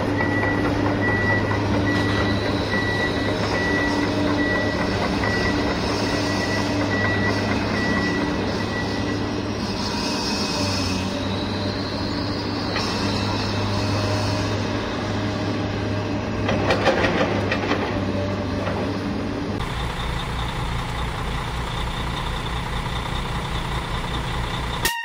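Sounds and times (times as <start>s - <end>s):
heavy truck engine running: 0.0s - 24.9s
clatter of knocks: 16.4s - 18.0s.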